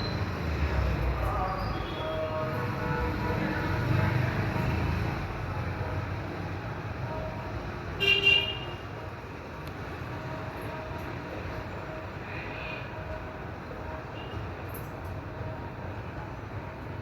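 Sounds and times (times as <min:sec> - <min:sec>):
road traffic rumble: 0:00.0 - 0:17.0
vehicle horn toots: 0:08.0 - 0:08.7.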